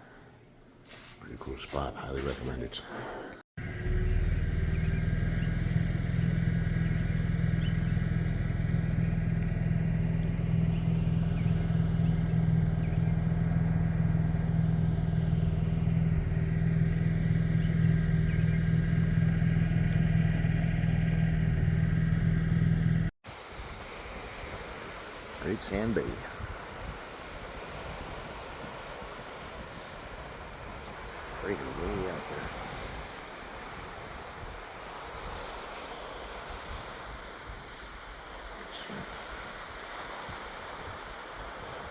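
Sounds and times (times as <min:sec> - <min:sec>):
vehicle engine and road noise: 0:03.6 - 0:23.1.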